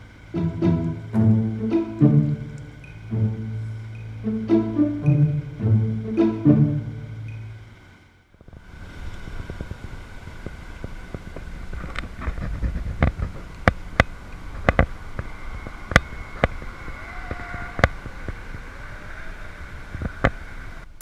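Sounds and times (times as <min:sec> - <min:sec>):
bicycle tyre and road rumble: 0:08.3 - 0:21.0.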